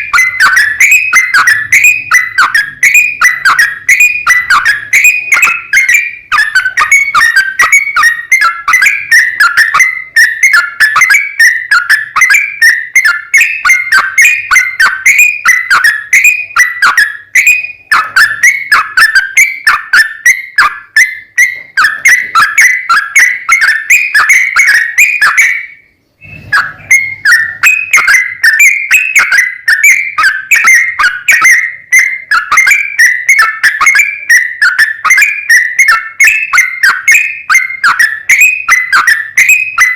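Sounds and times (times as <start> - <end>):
bulbul singing whistled phrases: 0.0 - 39.9.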